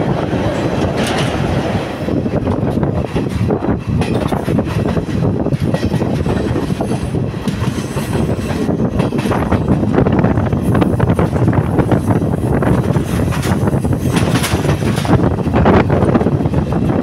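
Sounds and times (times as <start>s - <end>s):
clickety-clack of rail joints: 0.0s - 17.0s.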